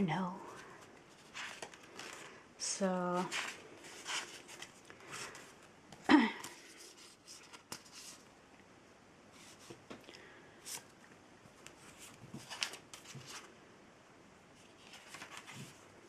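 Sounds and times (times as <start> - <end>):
paper pages rustling: 0.5 - 5.7, 6.4 - 8.3, 11.6 - 13.5, 14.6 - 15.8.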